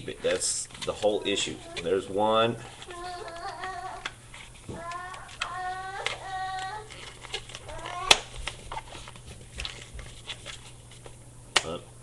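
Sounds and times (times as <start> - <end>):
balloon squeaking: 2.8 - 9.0.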